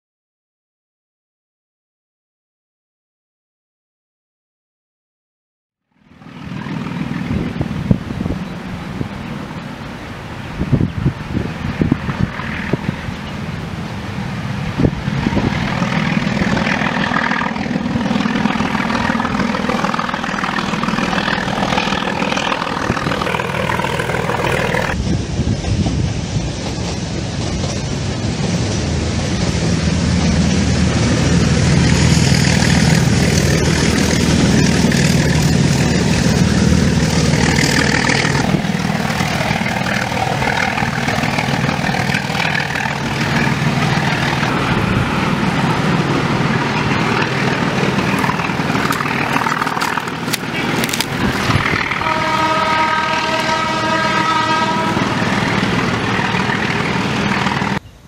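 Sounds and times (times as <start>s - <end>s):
train rumble and clatter: 6.0s - 57.8s
locomotive horn blast: 48.9s - 57.7s.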